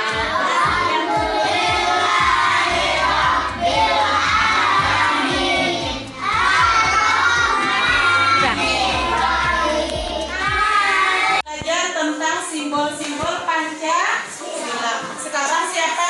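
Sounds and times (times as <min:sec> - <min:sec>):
music with a steady beat: 0:00.0 - 0:10.9
children singing and shouting: 0:00.0 - 0:11.5.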